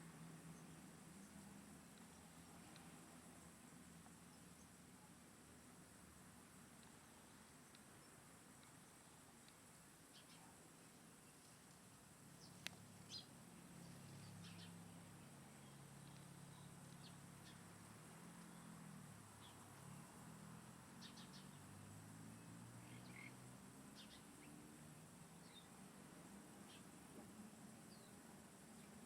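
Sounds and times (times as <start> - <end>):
faint bird chirps: 10.1 - 11.6, 12.3 - 20.0, 20.9 - 25.8, 26.6 - 27.0.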